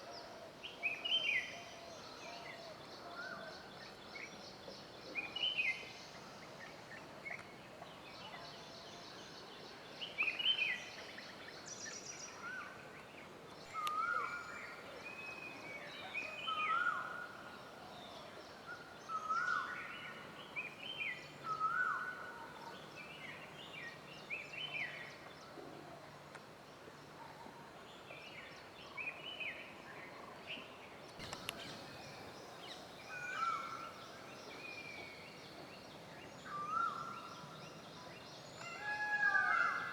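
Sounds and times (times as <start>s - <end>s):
faint high bird chatter: 30.0s - 39.9s
birds calling: 31.2s - 37.5s.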